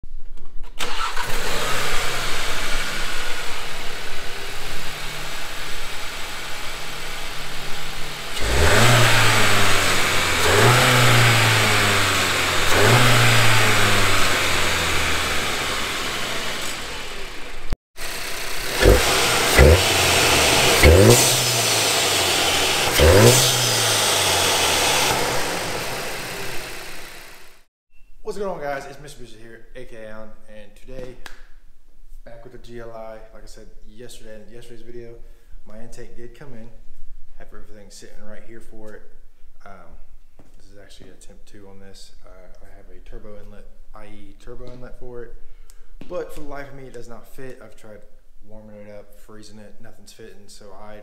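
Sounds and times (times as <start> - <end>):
car engine idling and revving: 0.9 - 27.7.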